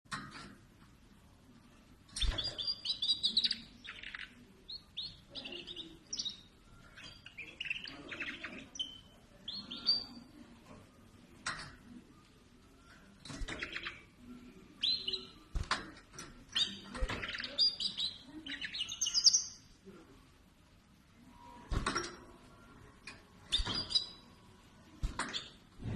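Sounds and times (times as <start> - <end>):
finch chirping and trilling: 2.1 - 10.3, 14.8 - 15.5, 16.4 - 19.6, 23.4 - 24.4.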